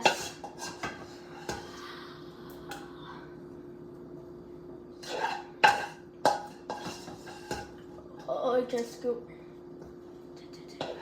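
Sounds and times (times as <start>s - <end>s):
utensil scraping a pan: 0.0s - 1.8s, 5.0s - 7.8s
faint steady hum: 0.0s - 11.0s.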